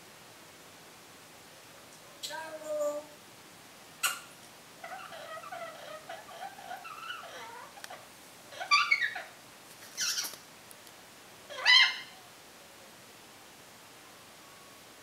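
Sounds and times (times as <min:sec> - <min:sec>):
parrot soft wavering sounds: 0:04.0 - 0:10.4, 0:11.5 - 0:12.3
parrot loud short calls: 0:11.5 - 0:12.2.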